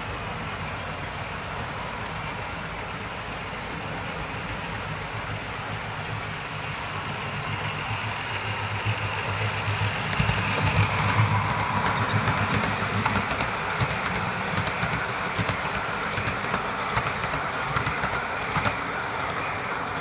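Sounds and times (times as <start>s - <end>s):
train running noise: 0.0s - 20.0s
wheels clicking over rail joints: 0.0s - 20.0s.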